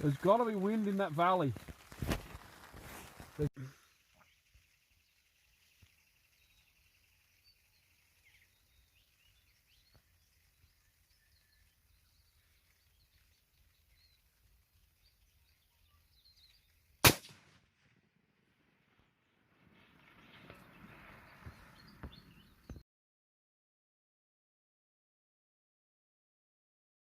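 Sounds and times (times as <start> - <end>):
faint bird chirps: 3.6 - 17.0, 19.9 - 22.8
rifle shot with echo: 17.0 - 17.6.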